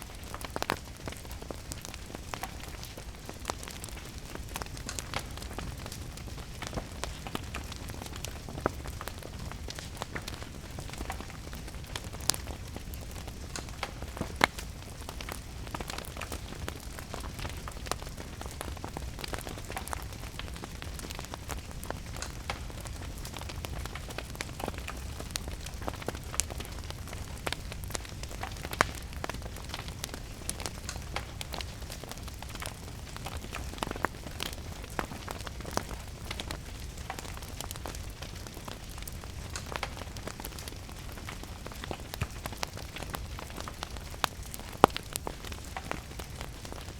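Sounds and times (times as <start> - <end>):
steady rain: 0.0 - 46.9
wood fire crackling: 0.0 - 46.9.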